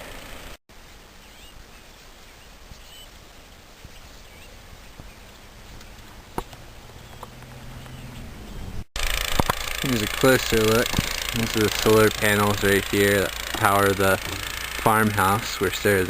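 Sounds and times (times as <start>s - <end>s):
faint outdoor background noise: 0.0s - 16.0s
soft bird chirps: 1.2s - 8.8s.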